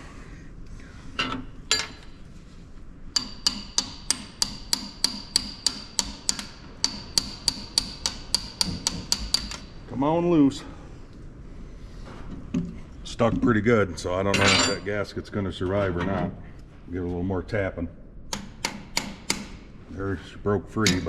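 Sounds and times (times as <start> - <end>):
hammer tapping on metal: 3.1 - 9.7, 18.3 - 19.6.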